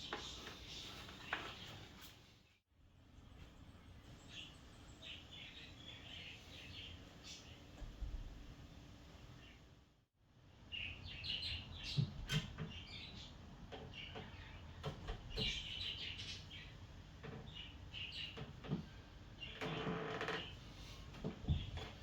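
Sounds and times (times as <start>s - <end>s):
birds chirping: 10.7s - 20.6s.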